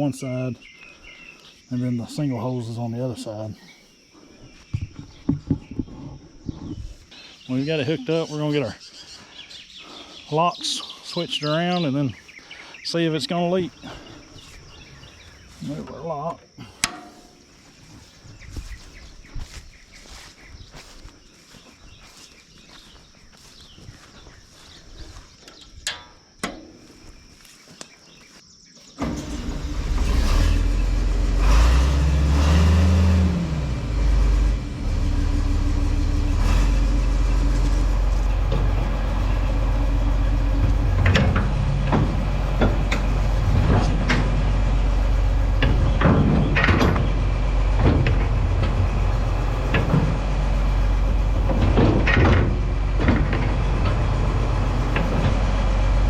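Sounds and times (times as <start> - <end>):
metal clanks and knocks: 16.8 - 17.5, 25.8 - 26.9, 40.5 - 44.5, 45.5 - 55.5
tractor engine revving: 29.0 - 56.0.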